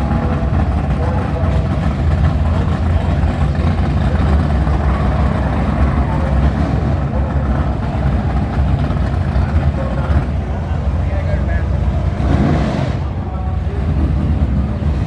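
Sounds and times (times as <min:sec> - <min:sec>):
race car engines idling: 0:00.0 - 0:15.0.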